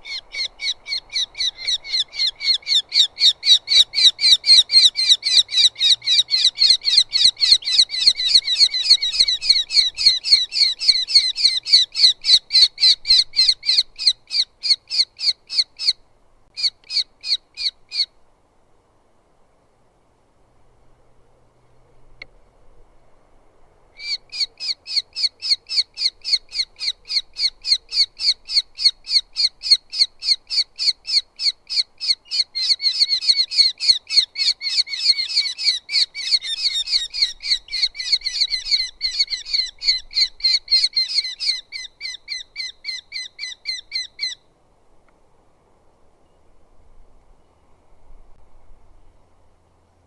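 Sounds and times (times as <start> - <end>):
bird calling short high calls: 0.0 - 18.2, 23.9 - 44.5.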